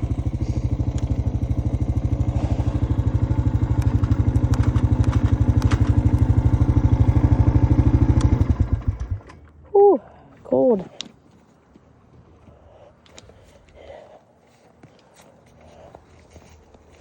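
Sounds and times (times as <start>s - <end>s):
atv engine running: 0.0s - 9.7s.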